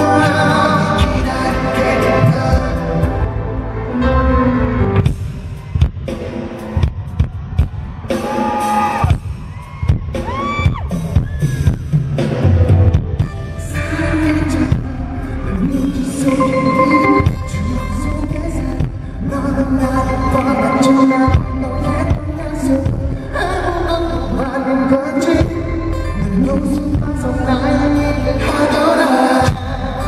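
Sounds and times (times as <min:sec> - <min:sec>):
person singing: 0:00.0 - 0:04.9, 0:13.2 - 0:30.0
pop song over speakers: 0:00.0 - 0:30.0
audience screaming: 0:05.3 - 0:12.4.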